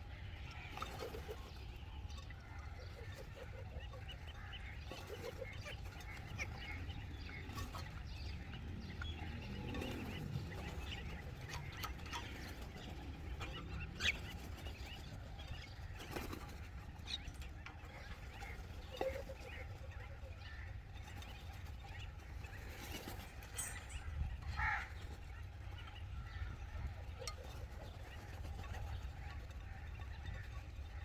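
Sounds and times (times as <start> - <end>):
birds calling: 0.0 - 31.0
steady low rumble: 22.0 - 25.0.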